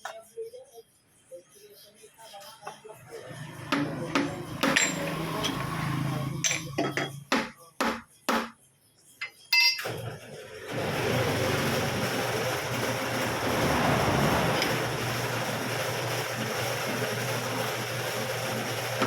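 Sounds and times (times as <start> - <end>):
hammer striking metal: 3.7 - 5.7, 6.4 - 8.6, 9.2 - 9.9
ringing metallic clink: 4.3 - 5.6, 6.4 - 7.6, 9.2 - 9.9
steady rushing noise: 12.5 - 16.1.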